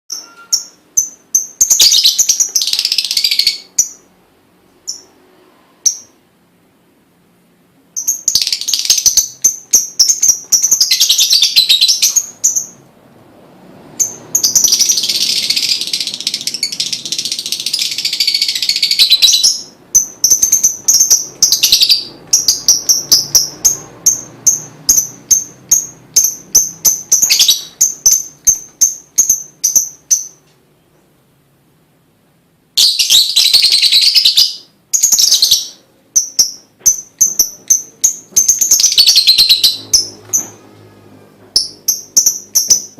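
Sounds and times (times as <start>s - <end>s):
bird chattering trills and chirps: 8.0s - 12.8s, 14.0s - 30.4s, 32.8s - 40.6s.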